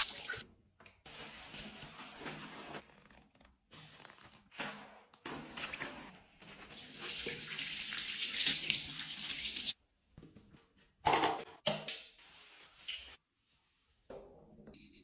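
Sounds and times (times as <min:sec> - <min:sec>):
tap water running into a sink: 0:00.0 - 0:00.4, 0:06.8 - 0:09.8.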